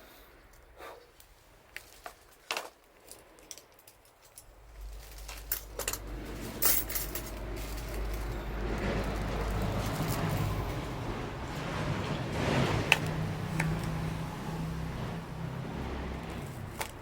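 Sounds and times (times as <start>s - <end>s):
low rumble: 4.5s - 17.0s
wood fire crackling and popping: 7.4s - 17.0s.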